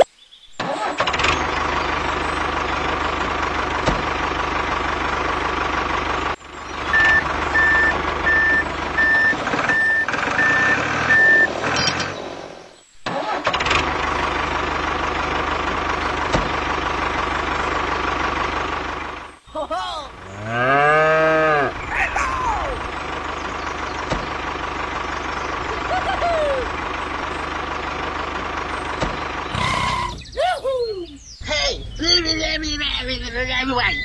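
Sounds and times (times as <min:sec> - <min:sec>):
diesel tractor engine idling: 0:00.6 - 0:34.0
reversing beeper: 0:06.8 - 0:12.0, 0:31.9 - 0:34.0.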